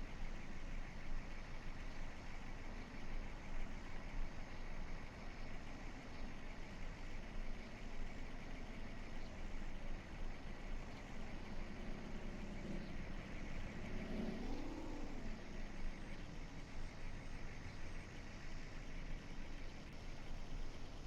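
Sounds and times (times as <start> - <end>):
steady background noise: 0.0 - 21.0
vehicle engine revving: 10.9 - 16.4.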